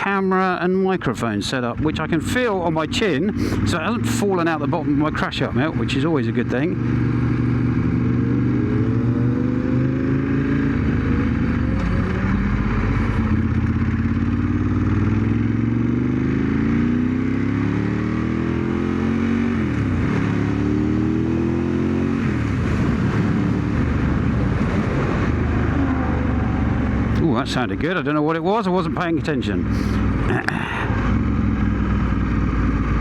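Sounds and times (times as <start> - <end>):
motorcycle engine revving through gears: 1.7 - 28.2, 30.9 - 33.0
wind rushing over microphone: 22.1 - 27.2.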